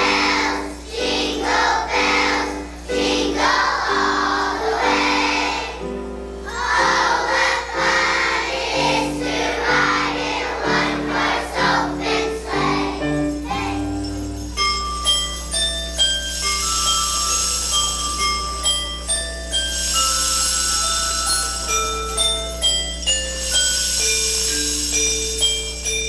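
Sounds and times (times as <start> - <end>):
children's choir singing: 0.0 - 14.4
instrumental accompaniment: 0.0 - 26.0.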